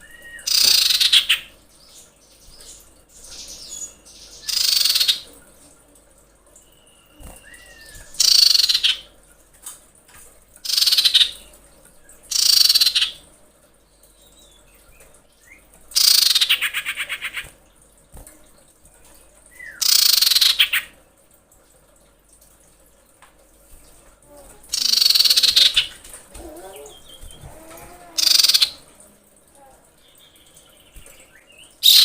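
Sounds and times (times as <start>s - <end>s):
bird harsh buzzy chattering calls: 0.4s - 1.6s, 8.1s - 9.0s, 10.6s - 11.4s, 12.3s - 13.2s, 15.9s - 17.5s, 19.8s - 20.9s, 24.7s - 26.0s, 26.7s - 28.9s.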